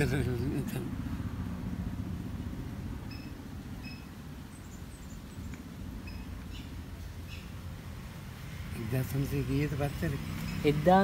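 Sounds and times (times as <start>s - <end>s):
low steady rumble: 0.0s - 11.0s
small bird chirps: 3.1s - 7.6s.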